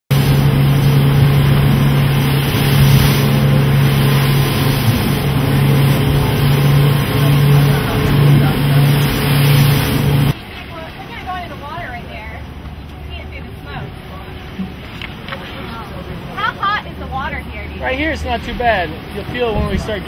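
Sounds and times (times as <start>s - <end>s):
outboard motors running: 0.0s - 20.0s
water rushing: 0.0s - 20.0s
wind rushing: 0.1s - 10.4s.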